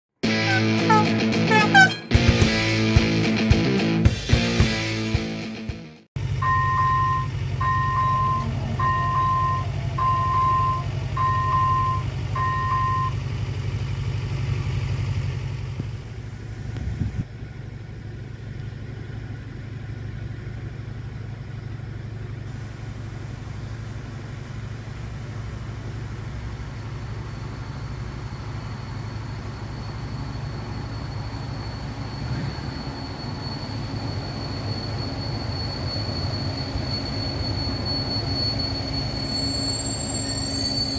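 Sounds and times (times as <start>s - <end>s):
low engine rumble: 0.2s - 3.9s, 6.2s - 40.9s
electronic beeps: 6.4s - 13.1s
thin high whine: 27.5s - 40.9s.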